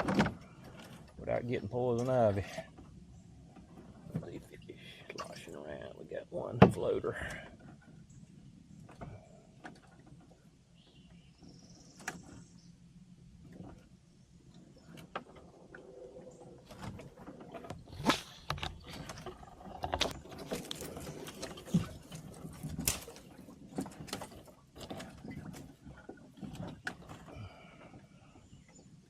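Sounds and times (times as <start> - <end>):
gear knocking and scraping in boat: 0.0 - 29.0.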